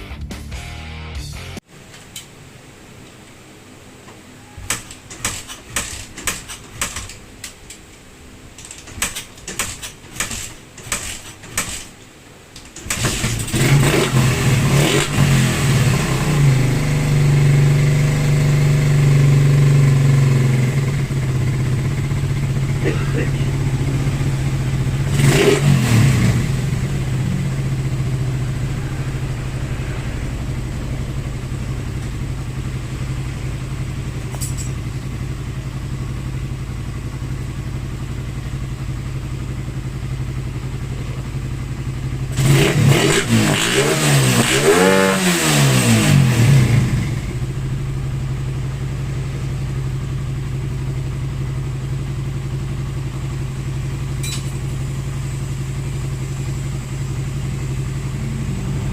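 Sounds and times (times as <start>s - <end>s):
motorcycle engine revving: 12.8s - 58.9s
motorcycle engine idling: 15.6s - 42.6s, 46.3s - 58.9s.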